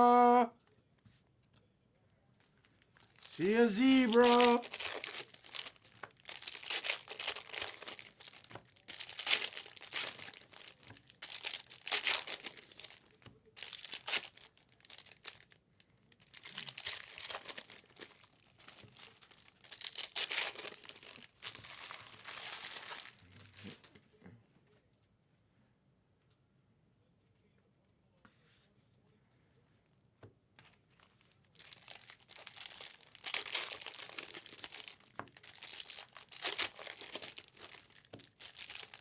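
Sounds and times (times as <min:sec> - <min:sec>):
packaging torn open and crinkled: 0:03.0 - 0:15.6, 0:16.2 - 0:23.7, 0:31.1 - 0:39.0.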